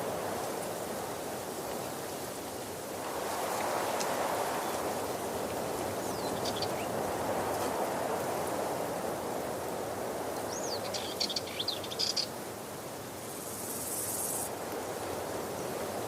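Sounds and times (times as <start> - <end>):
bird chirps: 10.5 - 12.3.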